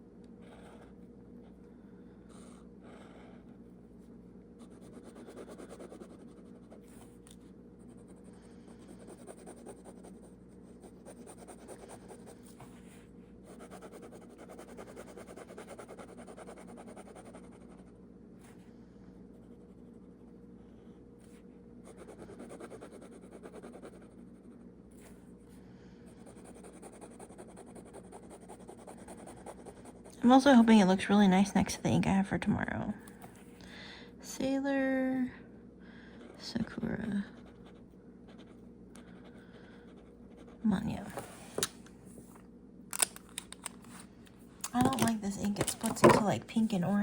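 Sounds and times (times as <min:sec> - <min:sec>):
steady low hum: 0:00.0 - 0:47.0
pen scratching on paper: 0:04.6 - 0:07.1, 0:08.8 - 0:12.9, 0:13.5 - 0:17.9, 0:21.9 - 0:24.6, 0:26.2 - 0:30.1.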